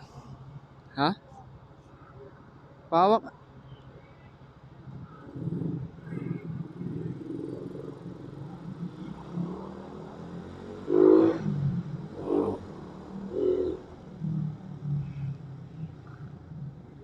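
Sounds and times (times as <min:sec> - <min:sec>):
motorcycle engine at low revs: 0:04.6 - 0:17.0.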